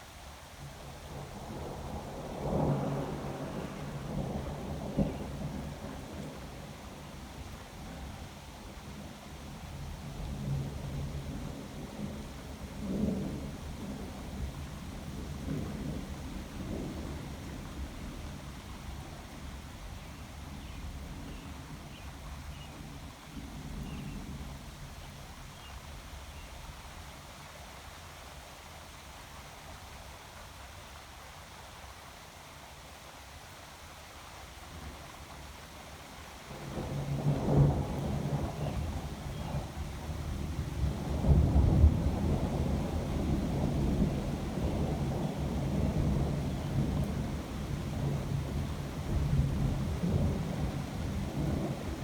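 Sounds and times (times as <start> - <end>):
thunder rumbling: 36.5 - 52.0.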